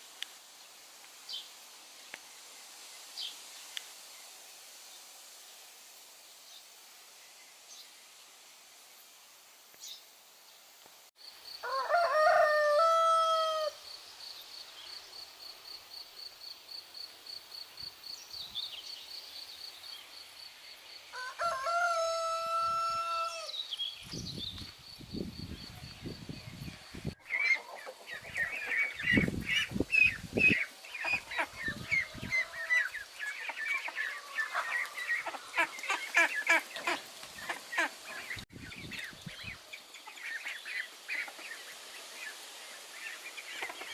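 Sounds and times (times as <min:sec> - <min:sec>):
rooster crowing: 0:11.6 - 0:13.8, 0:21.1 - 0:23.6, 0:31.4 - 0:33.0, 0:34.0 - 0:35.7
poultry clucking: 0:27.2 - 0:38.4.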